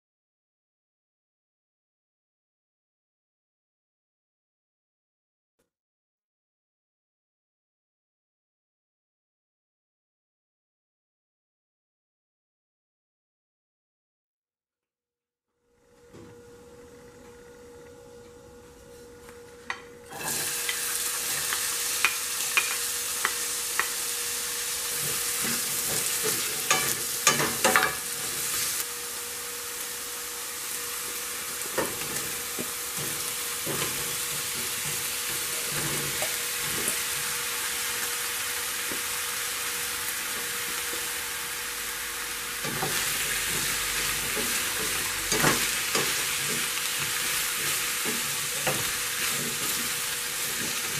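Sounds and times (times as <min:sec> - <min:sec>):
onion sizzling in oil: 0:20.1 - 0:50.9
sharp clacks against pan: 0:22.0 - 0:23.9
wooden spoon stirring: 0:42.8 - 0:50.9.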